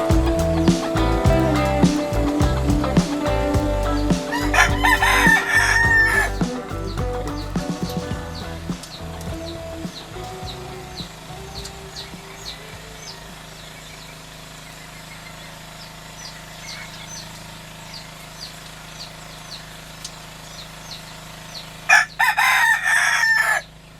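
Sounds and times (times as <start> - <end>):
low hum: 0.0 - 15.4
rooster crowing: 21.9 - 23.7.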